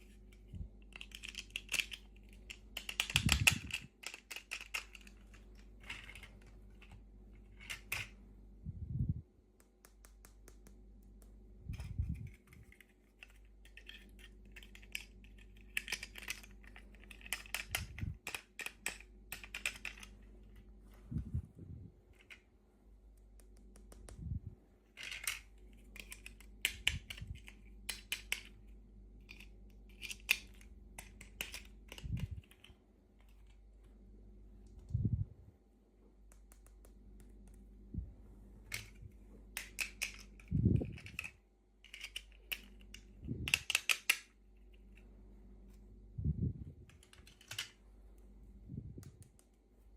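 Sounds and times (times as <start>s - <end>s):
small plastic pieces clicking: 0.3s - 8.1s, 11.7s - 20.2s, 25.0s - 28.6s, 29.2s - 33.6s, 38.7s - 44.9s, 46.9s - 47.8s.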